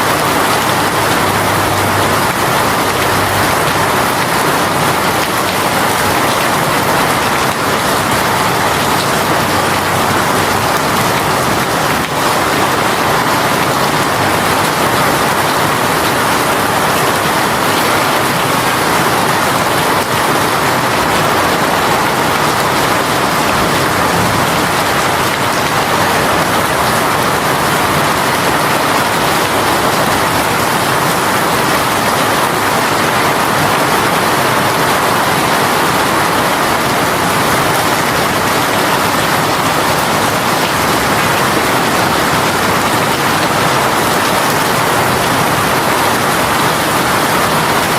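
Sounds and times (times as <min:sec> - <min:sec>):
heavy rain on surfaces: 0:00.0 - 0:47.9.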